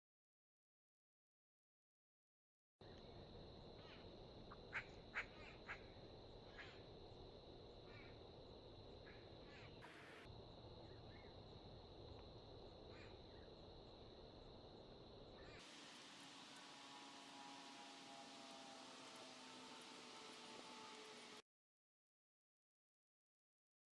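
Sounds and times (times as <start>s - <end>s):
steady hiss: 15.4s - 21.4s
thin high whine: 15.6s - 21.4s.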